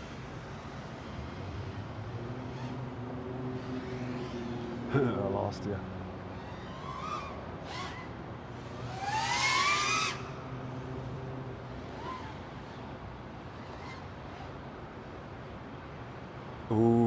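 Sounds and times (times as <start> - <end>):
drone motors revving: 0.0 - 5.2, 6.3 - 12.8.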